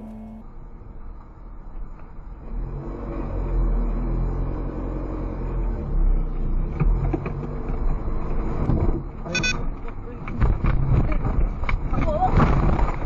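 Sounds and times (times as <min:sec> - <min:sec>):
car engine at high revs: 0:00.0 - 0:00.6, 0:02.4 - 0:09.2.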